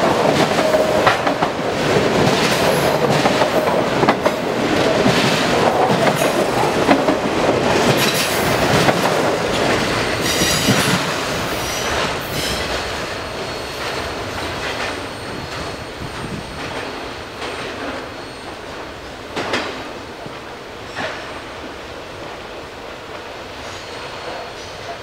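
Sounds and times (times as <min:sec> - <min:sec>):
train rumbling on track: 0:00.0 - 0:25.0
high wheel squeal: 0:09.8 - 0:19.3, 0:23.6 - 0:25.0.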